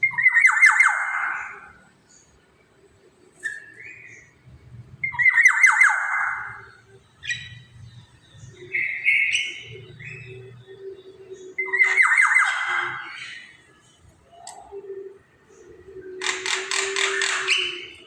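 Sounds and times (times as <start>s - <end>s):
oriole harsh rattling squawk: 16.2s - 18.0s.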